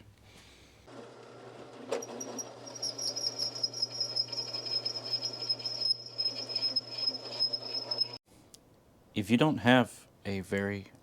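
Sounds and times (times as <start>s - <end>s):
electric drill boring through steel: 0.9s - 8.2s.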